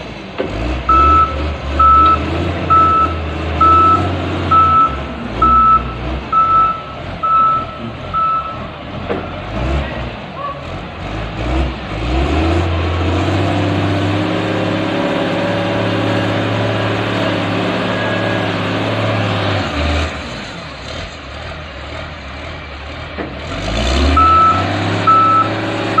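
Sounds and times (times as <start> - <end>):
diesel engine revving: 0.0 - 26.0
reversing alarm beeps: 0.9 - 8.6, 24.2 - 26.0.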